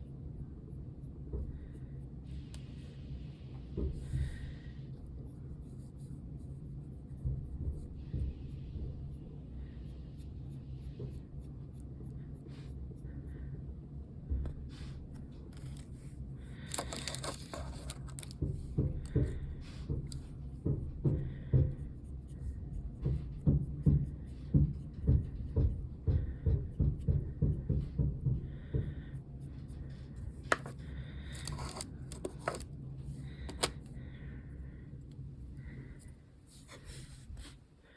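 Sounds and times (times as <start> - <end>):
steady low hum: 0.0 - 37.9
scratchy rustles: 15.6 - 18.4, 30.5 - 32.7.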